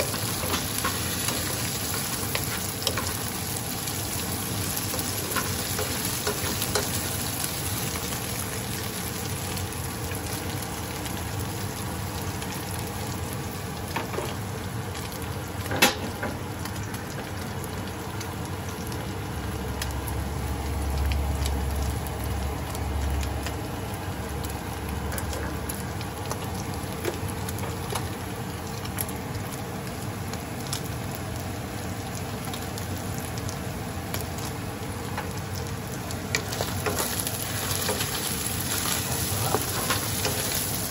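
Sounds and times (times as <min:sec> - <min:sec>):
fish sizzling in oil: 0:00.0 - 0:40.9.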